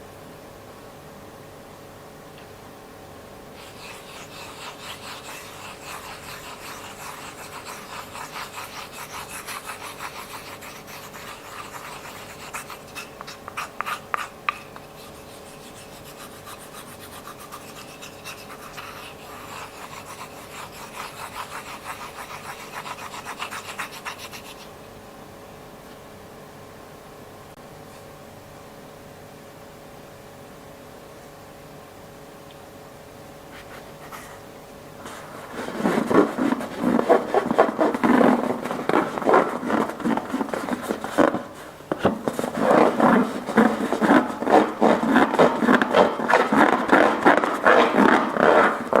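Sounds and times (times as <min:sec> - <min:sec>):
rapid rhythmic scraping strokes: 0:03.6 - 0:24.6, 0:35.1 - 0:49.0.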